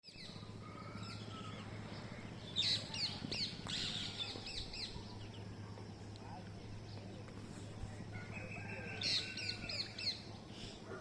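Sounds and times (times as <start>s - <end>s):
parrots calling shrilly: 8.2s - 10.2s.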